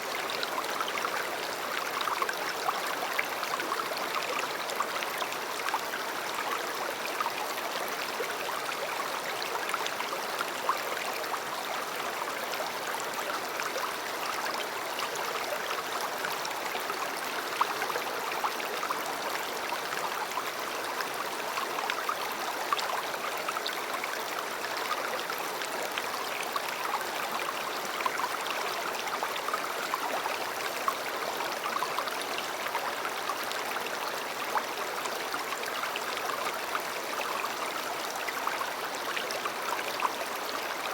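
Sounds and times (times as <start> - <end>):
river water flowing: 0.0 - 40.9.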